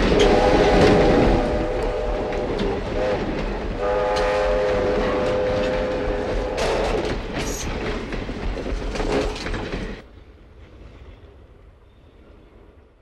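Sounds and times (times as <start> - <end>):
train wheels clicking over rail joints: 0.0 - 10.1
distant train running: 0.0 - 13.0.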